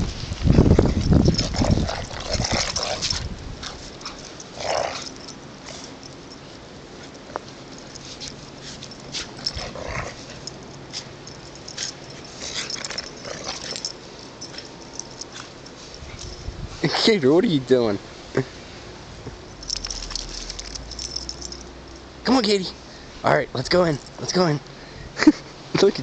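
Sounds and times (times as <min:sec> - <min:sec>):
crackling snow: 0:00.0 - 0:05.9
dogs play-fighting sounds: 0:00.5 - 0:16.4.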